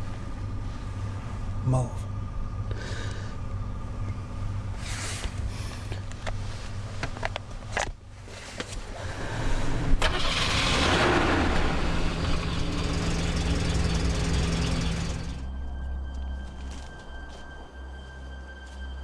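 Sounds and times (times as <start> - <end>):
car engine starting and idling: 2.3 - 17.2.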